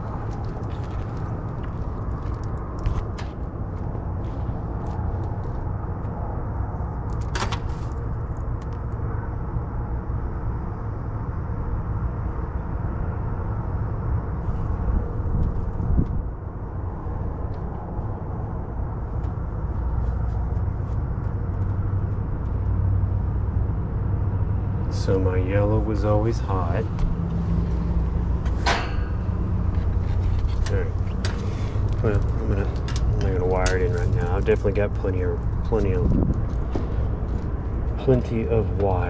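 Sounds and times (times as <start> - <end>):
handling ticks and clicks: 0.0 - 4.0, 29.7 - 34.8
low rumble and hum: 0.0 - 39.0.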